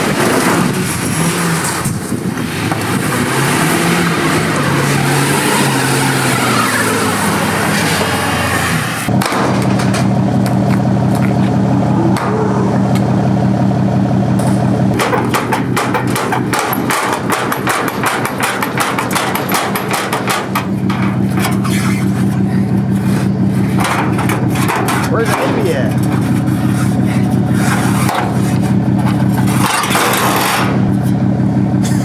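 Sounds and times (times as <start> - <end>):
car engine idling: 0.0 - 32.0
rapid clatter of sharp knocks: 9.2 - 11.5, 14.4 - 31.0.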